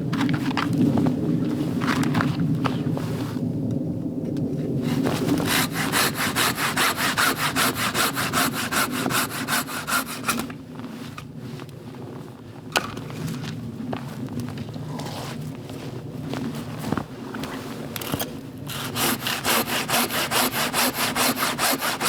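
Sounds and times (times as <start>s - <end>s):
hand saw cutting wood: 4.9s - 10.5s, 18.0s - 22.0s.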